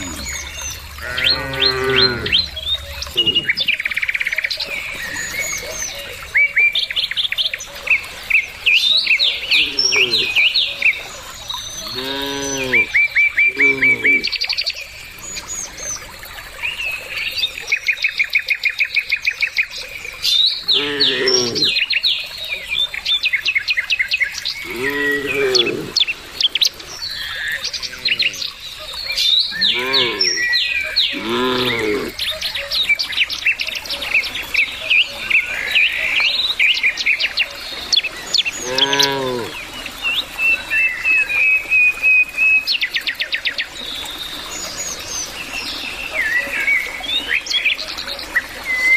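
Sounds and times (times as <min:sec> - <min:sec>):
cattle mooing: 0:00.0 - 0:00.4, 0:01.0 - 0:03.8, 0:09.6 - 0:10.4, 0:11.8 - 0:12.9, 0:13.5 - 0:14.3, 0:20.7 - 0:21.7, 0:24.6 - 0:26.0, 0:27.8 - 0:28.4, 0:29.6 - 0:30.5, 0:31.1 - 0:32.1, 0:38.6 - 0:39.5
birds chirping and trilling: 0:00.0 - 0:41.7.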